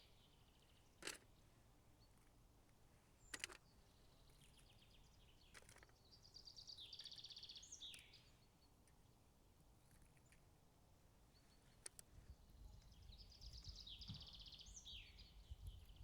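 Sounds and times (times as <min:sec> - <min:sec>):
bird chirping trill: 0:03.2 - 0:08.5, 0:12.4 - 0:16.0.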